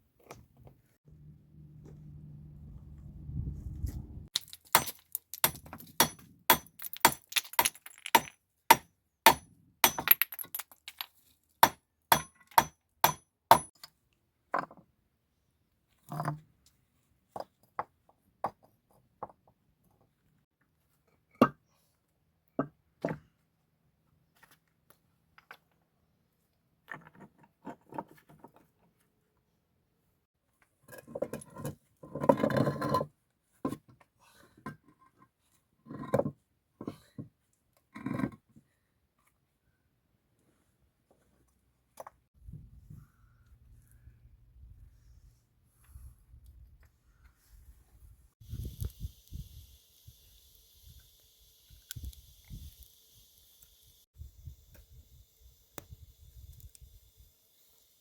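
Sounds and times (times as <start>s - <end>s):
hard objects knocking and clinking: 4.3s - 13.7s.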